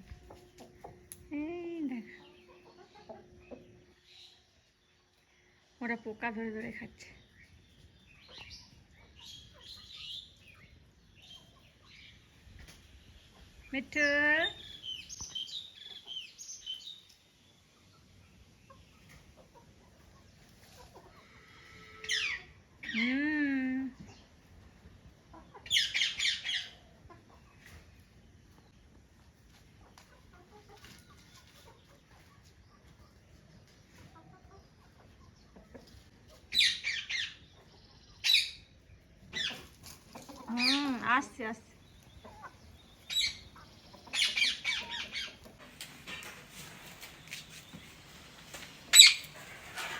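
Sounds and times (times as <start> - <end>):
chickens clucking: 0.0 - 1.2, 2.0 - 5.8, 6.5 - 13.7, 14.8 - 23.2, 23.9 - 49.9
harsh high-pitched bird calls: 36.5 - 37.4, 48.9 - 49.6.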